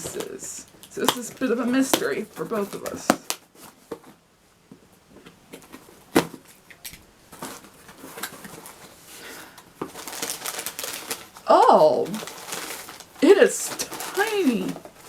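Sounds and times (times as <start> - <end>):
cardboard packaging rustling: 0.0 - 4.2, 4.8 - 15.0.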